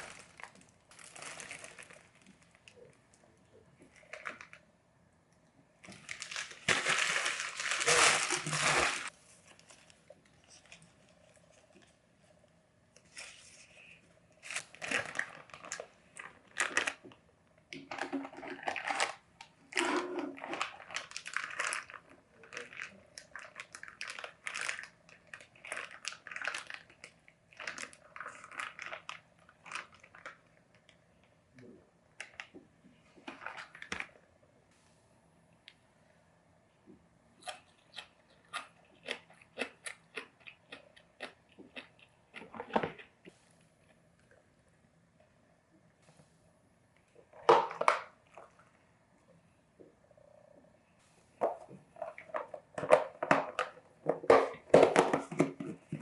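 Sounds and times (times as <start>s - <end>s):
packaging crinkling and rustling: 0.0s - 3.0s, 5.8s - 12.0s, 13.1s - 17.2s, 17.8s - 30.9s, 33.2s - 34.2s.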